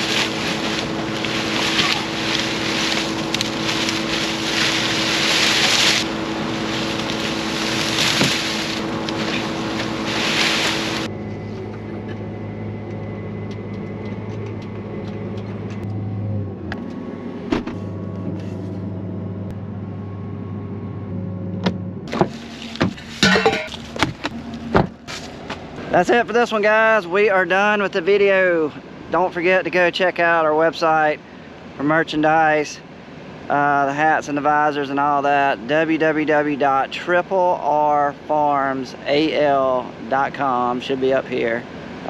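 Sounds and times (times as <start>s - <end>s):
combine harvester rushing noise: 0.0s - 30.8s
engine drone: 0.0s - 42.0s.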